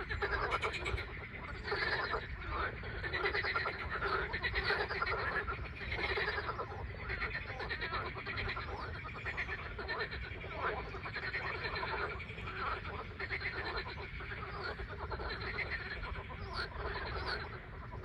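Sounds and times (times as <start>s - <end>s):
frogs croaking in chorus: 0.0s - 18.0s.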